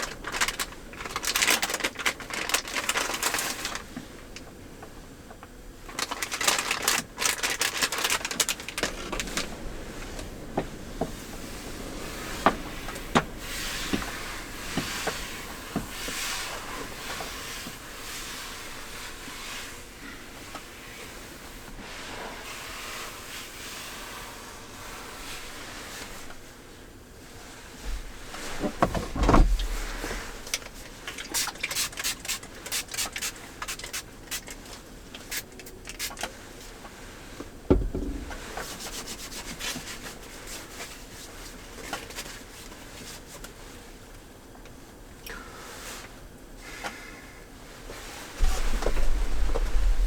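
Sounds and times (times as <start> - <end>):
heavy thumps: 27.8 - 30.1, 37.7 - 38.8.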